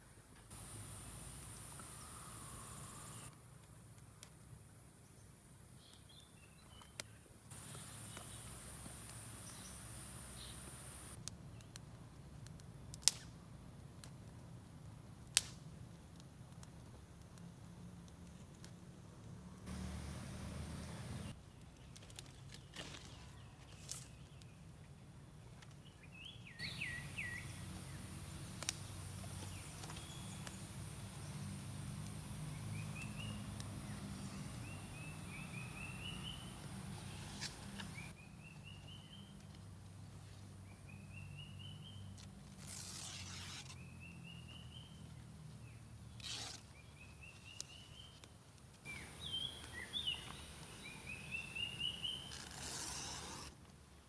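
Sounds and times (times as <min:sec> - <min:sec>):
bird rising call: 0:01.6 - 0:03.3, 0:26.6 - 0:28.3
sharp clicks: 0:26.6 - 0:33.9.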